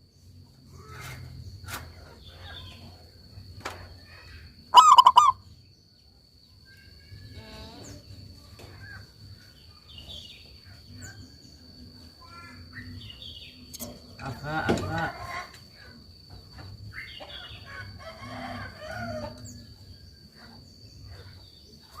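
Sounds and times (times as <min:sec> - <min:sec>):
soft bird calls: 0:03.8 - 0:05.6
doves cooing: 0:04.7 - 0:05.4.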